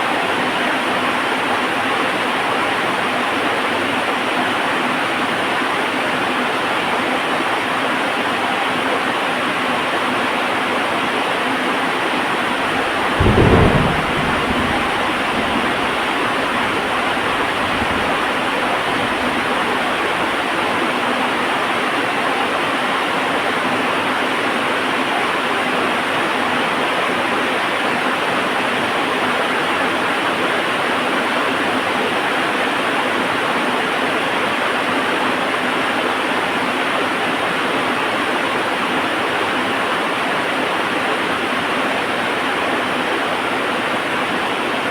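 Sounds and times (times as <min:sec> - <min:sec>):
heavy rain: 0:11.5 - 0:21.8
loud thunderclap rumbling: 0:12.0 - 0:20.6.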